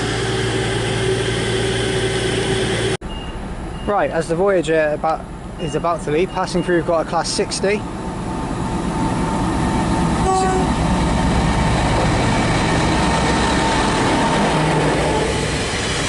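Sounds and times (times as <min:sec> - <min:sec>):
locomotive engine rumbling: 0:00.0 - 0:16.0
short horn note: 0:10.2 - 0:10.8.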